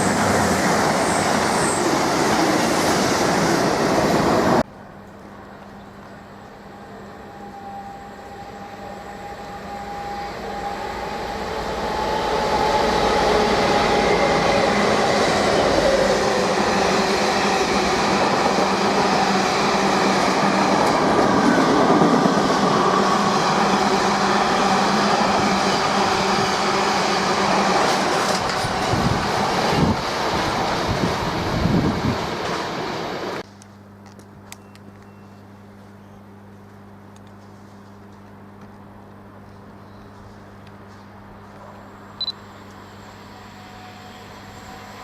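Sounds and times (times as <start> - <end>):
diesel train passing: 0.0 - 33.4, 41.3 - 45.0
wheels rattling on rail: 9.4 - 32.6.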